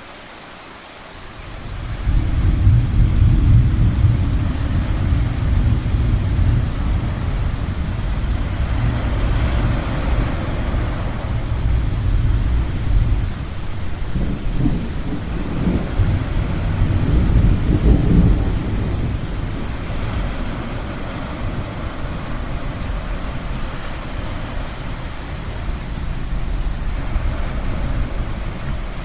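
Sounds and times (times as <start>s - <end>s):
surf washing: 0.0s - 29.0s
rolling thunder: 1.5s - 29.0s.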